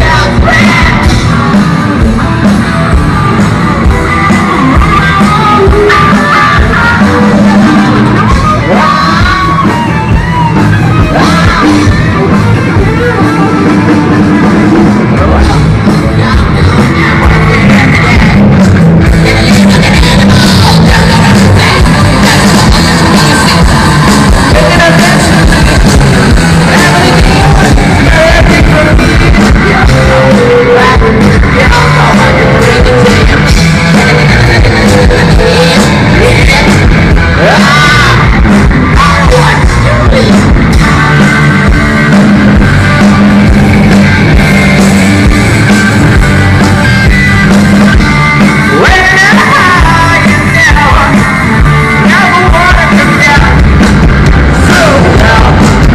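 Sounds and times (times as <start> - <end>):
bass: 0.0 - 55.9
distorted electric guitars: 0.0 - 55.9
drums: 0.0 - 55.9
singer shouting and singing: 0.0 - 55.9.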